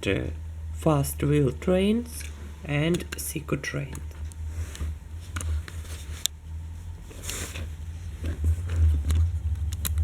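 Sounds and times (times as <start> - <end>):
rustling: 4.2 - 9.7.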